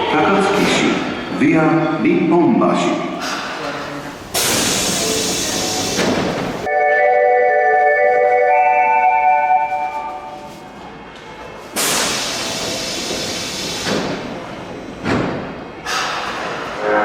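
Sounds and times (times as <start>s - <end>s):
train air hiss: 4.3s - 6.6s, 11.8s - 14.4s.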